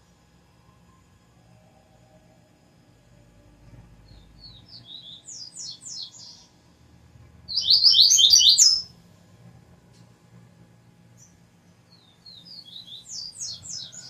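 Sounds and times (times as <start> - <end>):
bird singing high notes: 7.5 - 8.9.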